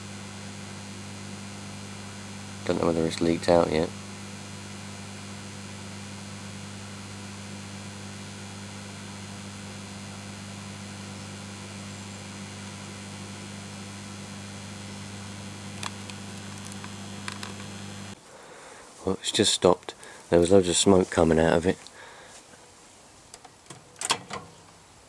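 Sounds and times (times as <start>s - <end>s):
microwave oven humming: 0.0s - 18.2s.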